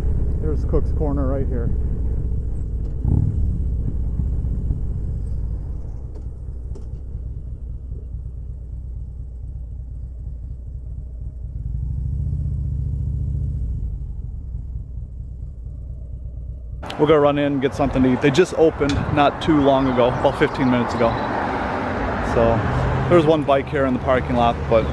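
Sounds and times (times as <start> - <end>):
motorcycle engine running: 0.0 - 19.2.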